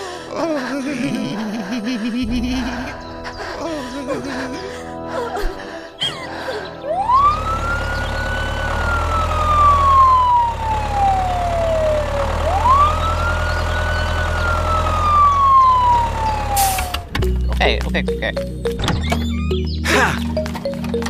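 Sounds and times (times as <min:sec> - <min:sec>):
low rumble: 0:01.2 - 0:05.4
siren wailing: 0:06.8 - 0:17.1.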